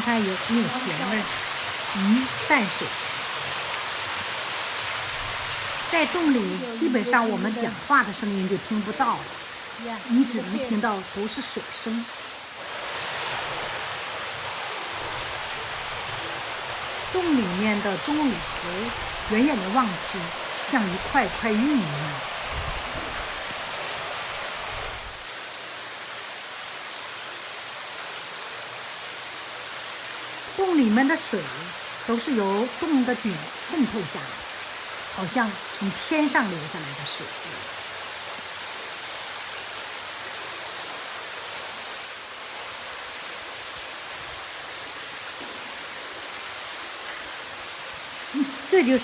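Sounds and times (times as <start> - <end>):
water falling from cave roof: 0.0 - 49.0
water pouring and splashing: 36.3 - 48.8.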